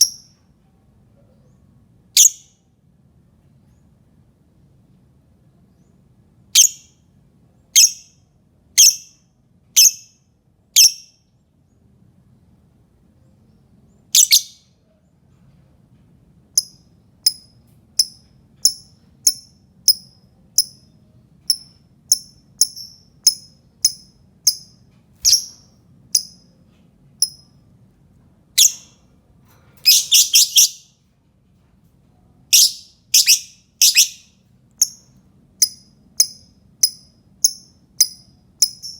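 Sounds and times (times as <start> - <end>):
lovebird chirping: 0.0 - 0.4, 2.2 - 2.6, 6.5 - 7.0, 7.7 - 8.2, 8.8 - 9.2, 9.8 - 10.2, 10.8 - 11.2, 13.9 - 14.7, 16.6 - 26.6, 28.6 - 29.0, 29.8 - 31.0, 32.5 - 38.9.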